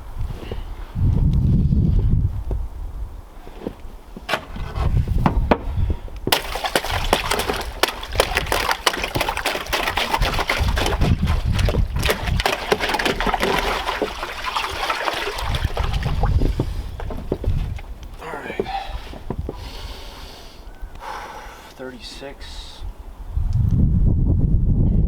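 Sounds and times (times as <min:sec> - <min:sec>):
ice cracking and clinking: 0:06.3 - 0:15.8
water sloshing: 0:06.3 - 0:19.5.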